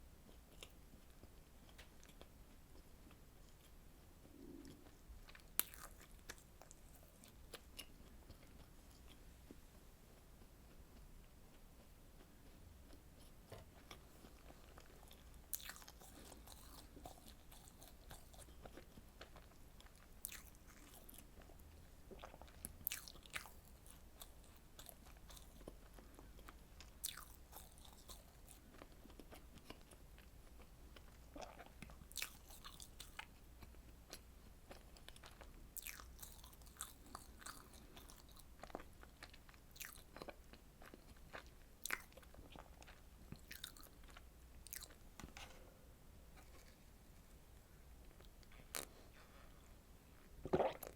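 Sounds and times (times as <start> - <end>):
biting and chewing: 10.7 - 21.6, 22.2 - 45.0.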